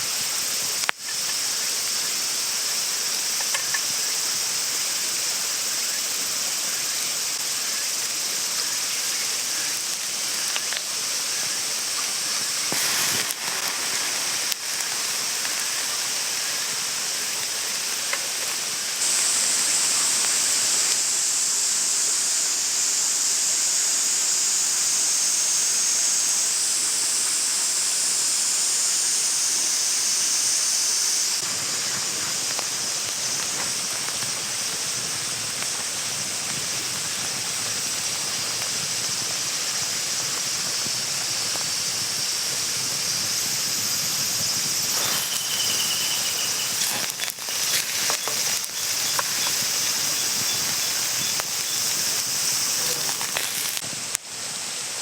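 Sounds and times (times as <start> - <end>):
crackles and pops: 0.0 - 1.6, 3.2 - 4.2, 8.5 - 21.0, 31.4 - 43.3, 44.3 - 54.3
food sizzling in a frying pan: 0.0 - 24.2, 26.5 - 54.5.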